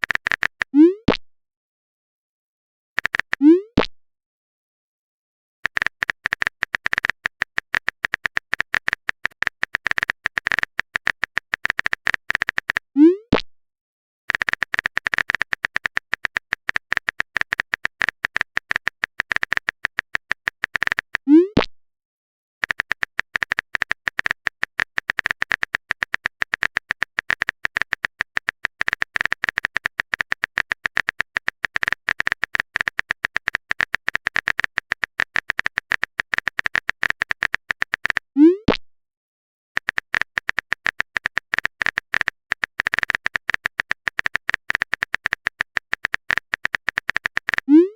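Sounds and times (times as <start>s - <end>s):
typing sound effect clicking: 0.0s - 1.2s, 3.0s - 3.8s, 5.6s - 13.2s, 14.3s - 21.6s, 22.6s - 38.8s, 39.8s - 47.9s.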